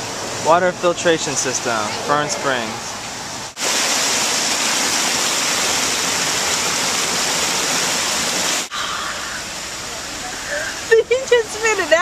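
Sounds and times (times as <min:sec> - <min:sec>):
water splashing over rocks: 0:03.5 - 0:10.8.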